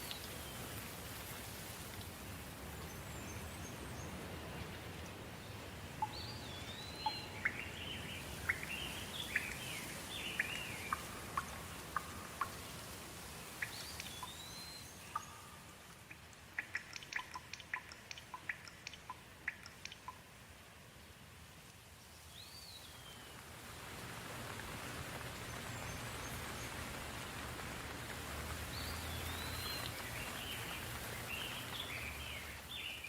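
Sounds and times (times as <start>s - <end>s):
soft rain falling: 0.0s - 33.0s
bird calling: 6.0s - 12.5s
drops dripping and tapping: 10.4s - 12.8s, 13.6s - 14.5s, 15.1s - 20.3s.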